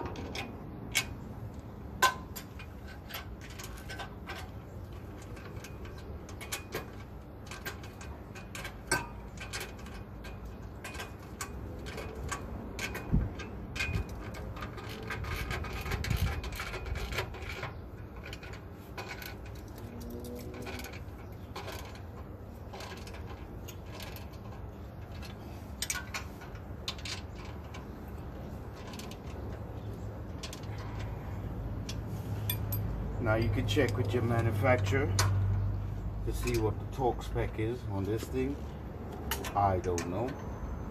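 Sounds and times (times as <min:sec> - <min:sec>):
metal tools clinking and scraping: 0:00.0 - 0:40.9.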